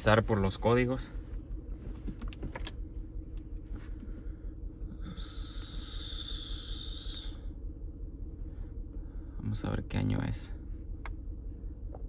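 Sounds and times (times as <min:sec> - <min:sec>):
car engine idling unevenly: 0:00.0 - 0:12.0.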